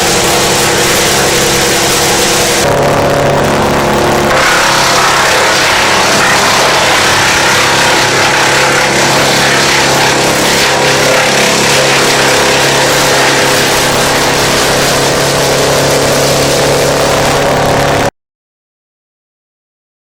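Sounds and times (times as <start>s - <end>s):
wood chipper engine running: 0.0s - 18.1s.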